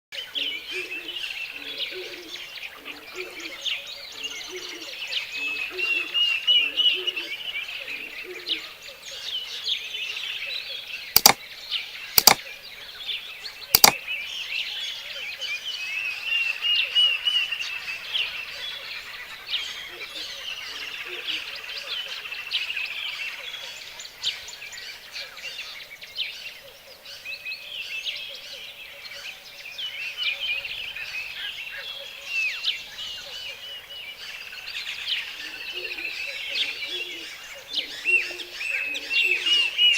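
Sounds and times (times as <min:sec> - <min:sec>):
sharp clicks: 0:11.2 - 0:11.4, 0:12.2 - 0:12.4, 0:13.8 - 0:14.0
birds chirping in chorus: 0:12.3 - 0:39.9.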